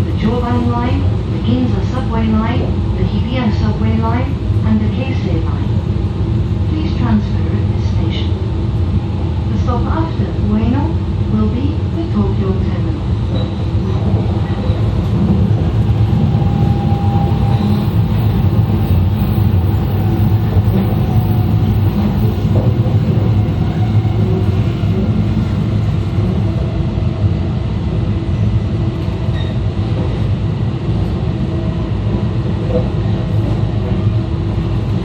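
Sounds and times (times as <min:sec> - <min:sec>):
train wheels rumbling: 0:12.1 - 0:35.0.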